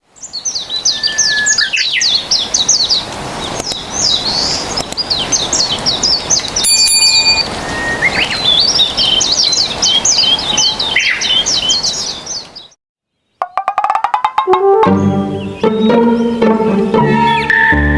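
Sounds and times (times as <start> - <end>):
songbird singing: 0.0 - 17.9
brief high ringing tone: 6.6 - 7.5.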